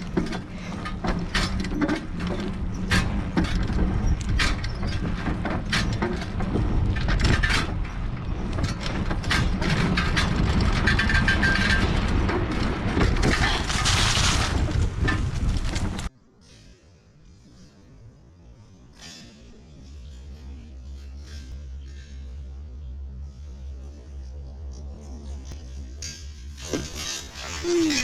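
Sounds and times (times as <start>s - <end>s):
bike rattles and knocks: 0.0s - 16.2s, 18.7s - 28.0s
wind rumbling on microphone: 0.0s - 16.4s
thin whine: 16.3s - 28.0s.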